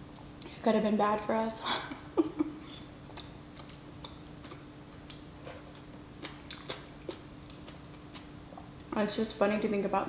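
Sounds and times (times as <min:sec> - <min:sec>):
wet chewing mouth clicks: 0:03.1 - 0:08.9.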